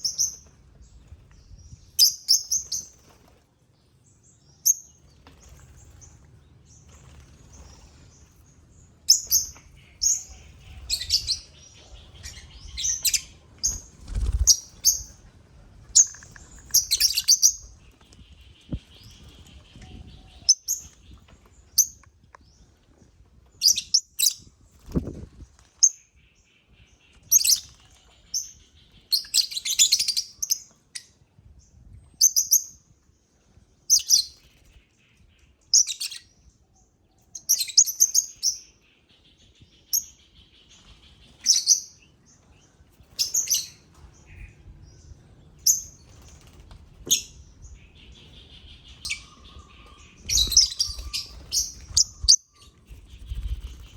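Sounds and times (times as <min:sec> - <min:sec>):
lovebirds chirping: 0:00.0 - 0:03.4, 0:04.3 - 0:22.7, 0:23.6 - 0:25.0, 0:25.8 - 0:31.2, 0:33.9 - 0:53.9.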